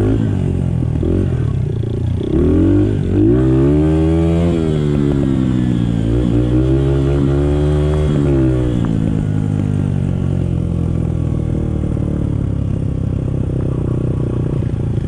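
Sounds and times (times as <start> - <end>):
dirt bike engine revving: 0.0 - 9.4.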